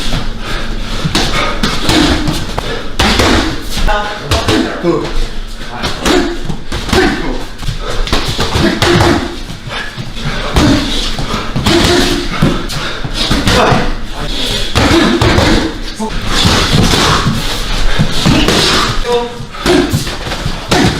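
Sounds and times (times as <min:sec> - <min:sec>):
punches and kicks landing: 0:01.1 - 0:03.7, 0:08.1 - 0:09.6, 0:10.4 - 0:14.0, 0:14.7 - 0:15.8, 0:16.4 - 0:19.0, 0:19.6 - 0:20.9
fighters grunting: 0:01.2 - 0:03.6, 0:05.7 - 0:20.9
people shouting: 0:08.4 - 0:09.4, 0:11.6 - 0:12.6, 0:13.3 - 0:14.0, 0:14.8 - 0:15.8, 0:18.2 - 0:20.9.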